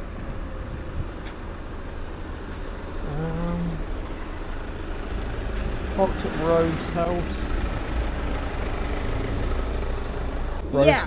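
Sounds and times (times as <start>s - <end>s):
low rumble of street noise: 0.0s - 11.0s
short wordless voice: 3.0s - 3.8s, 6.0s - 7.6s, 10.7s - 11.0s.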